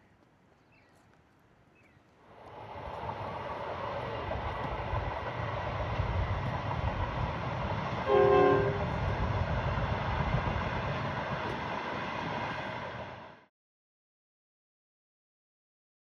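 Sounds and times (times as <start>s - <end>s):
short horn blast: 8.1s - 8.9s.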